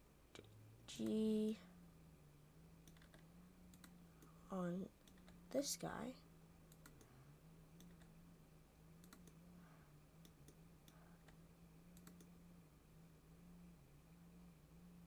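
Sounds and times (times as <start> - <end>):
low electrical hum: 0.0 - 15.0
mouse and keyboard clicking: 6.7 - 7.1, 9.0 - 9.4, 10.2 - 12.4.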